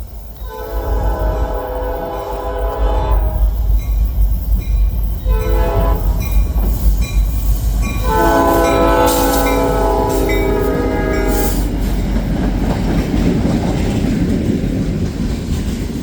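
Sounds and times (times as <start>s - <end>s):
train rumble: 0.0s - 16.0s
locomotive air horn: 0.5s - 3.5s, 5.3s - 6.3s, 8.0s - 11.7s.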